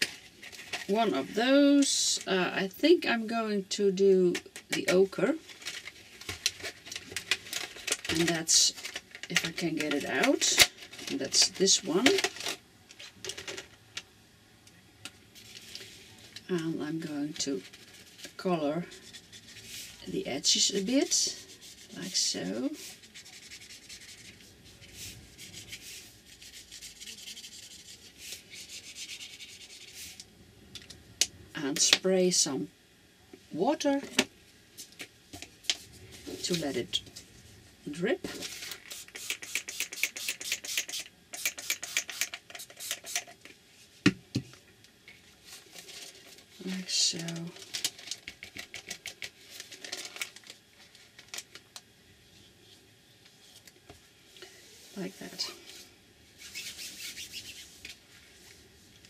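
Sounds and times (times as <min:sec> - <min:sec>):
brush pen rubbing on paper: 0:21.0 - 0:30.1, 0:56.4 - 0:57.8.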